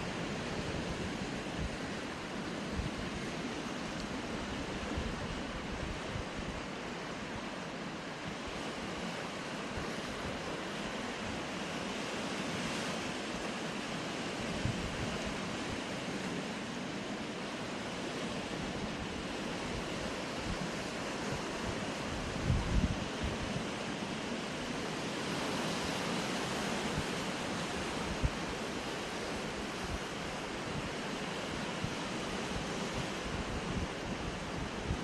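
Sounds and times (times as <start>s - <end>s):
sea surf washing against rocks: 0.0s - 35.0s
wind buffeting microphone: 18.7s - 23.6s, 31.7s - 35.0s.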